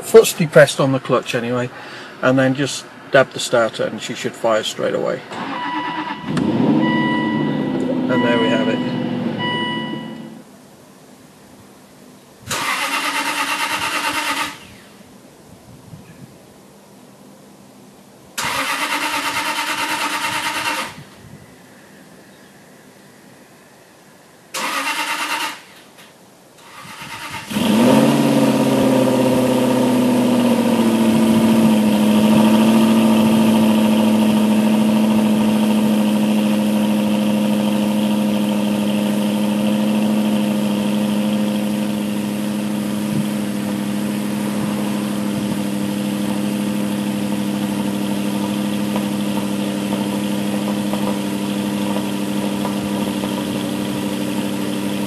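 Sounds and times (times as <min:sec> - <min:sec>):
car engine revving and idling: 0:03.8 - 0:10.5, 0:27.3 - 0:55.0.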